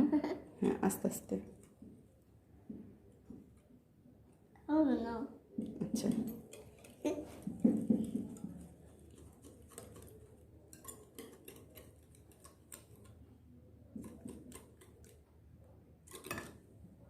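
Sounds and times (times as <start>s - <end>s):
utensil clicking against bowl: 6.0s - 13.2s, 13.9s - 15.2s.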